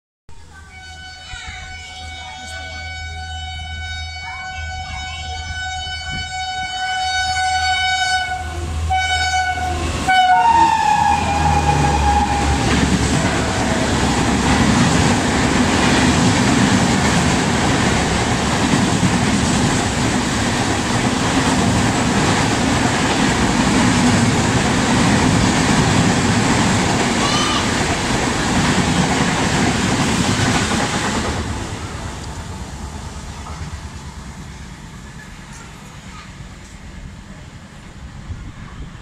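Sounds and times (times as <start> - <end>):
locomotive horn blaring: 0.8 - 14.2
train wheels rattling on rail: 7.6 - 39.0.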